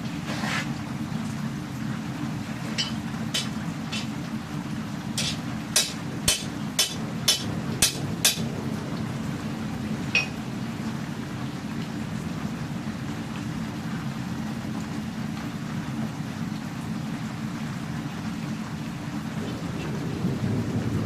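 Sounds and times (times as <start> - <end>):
hammer striking steel on anvil: 2.8 - 4.1, 5.2 - 8.4, 10.2 - 10.4.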